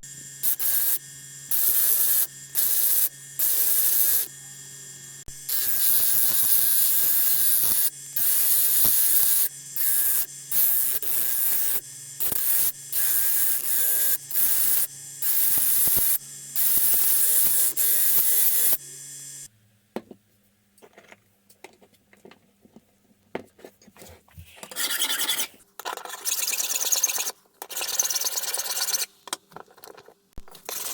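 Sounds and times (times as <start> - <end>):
harsh hissing of tool on metal: 5.5 - 19.5
motor humming: 7.6 - 19.5.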